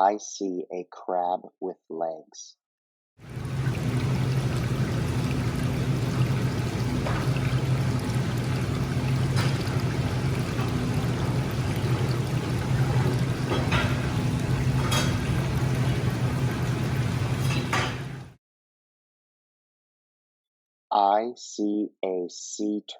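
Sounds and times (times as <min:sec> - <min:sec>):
low steady hum: 0:03.2 - 0:18.3
water pouring or bubbling: 0:03.2 - 0:18.3.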